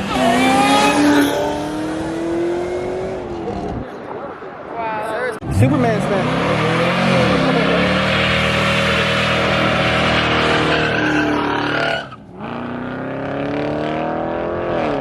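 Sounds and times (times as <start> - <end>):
car engine revving high: 0.0 - 3.5, 5.4 - 15.0
tyres squealing: 6.6 - 12.2.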